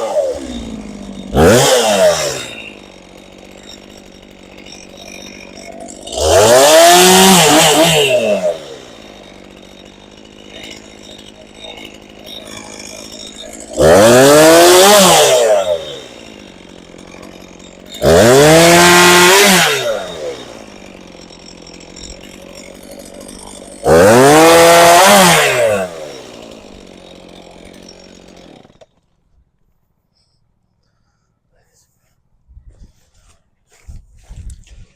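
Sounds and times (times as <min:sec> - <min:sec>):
chainsaw revving and idling: 0:00.0 - 0:29.2.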